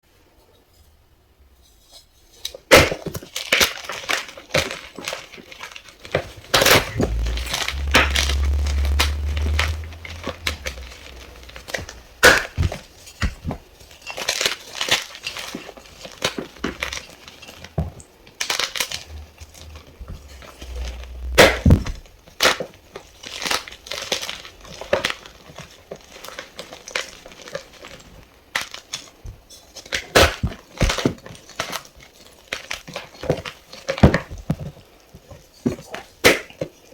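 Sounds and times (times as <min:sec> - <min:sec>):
low rumble: 0:06.2 - 0:12.9, 0:18.9 - 0:22.2.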